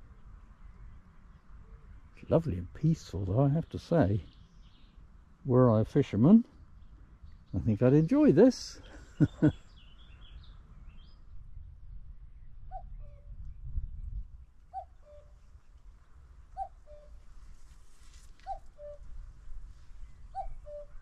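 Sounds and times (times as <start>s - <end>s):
cuckoo calling: 8.8s - 9.8s, 14.7s - 15.3s, 16.6s - 17.2s, 18.4s - 19.1s, 20.3s - 21.0s.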